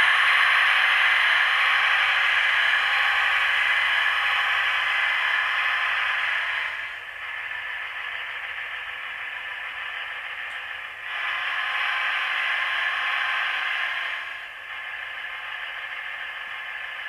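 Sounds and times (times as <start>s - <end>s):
model train diesel sounds from small speaker: 0.0s - 17.0s.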